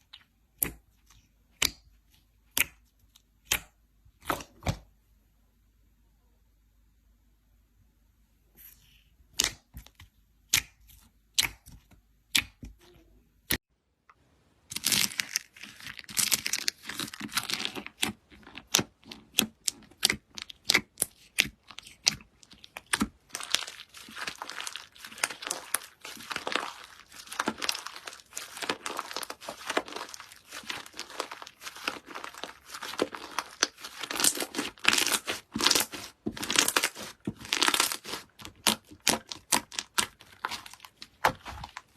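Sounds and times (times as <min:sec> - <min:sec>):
slime crackling and clicking: 0:14.8 - 0:41.8.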